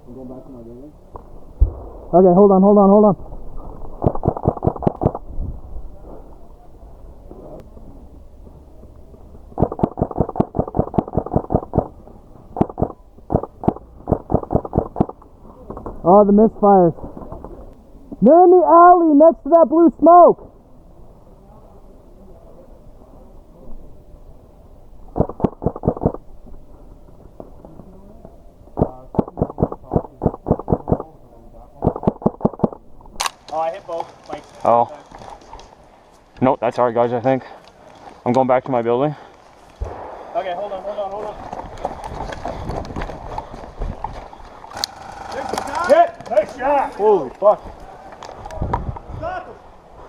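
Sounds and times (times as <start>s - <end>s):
airsoft rifle firing: 4.0s - 5.2s, 9.6s - 12.0s, 12.6s - 15.2s, 25.2s - 26.2s, 28.8s - 31.1s, 31.8s - 33.3s.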